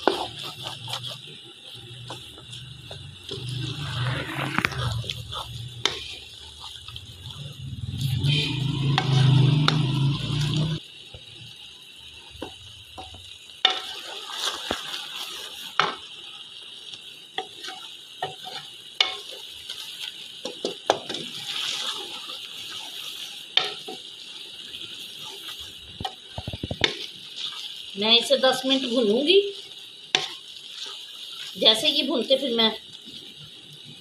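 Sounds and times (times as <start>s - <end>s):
spoon scraping and knocking pot: 0.0s - 1.3s
chickpeas sizzling in a pot: 0.0s - 34.0s.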